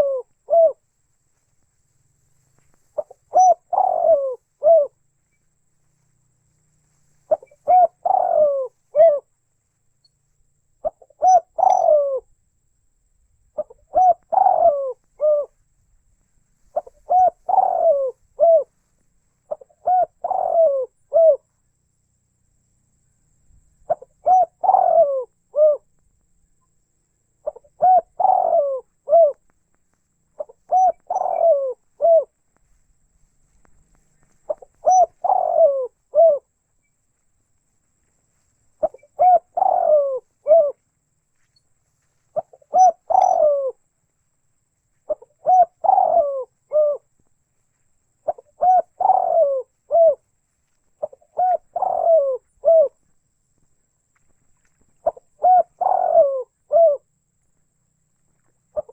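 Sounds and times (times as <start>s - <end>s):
dove cooing: 0.0s - 0.9s, 2.0s - 5.2s, 6.3s - 9.4s, 10.7s - 12.4s, 13.6s - 15.6s, 16.4s - 21.7s, 23.8s - 26.0s, 27.0s - 29.5s, 30.2s - 32.8s, 33.4s - 36.9s, 38.3s - 43.9s, 44.9s - 47.2s, 48.2s - 53.1s, 55.0s - 57.2s, 58.6s - 58.9s.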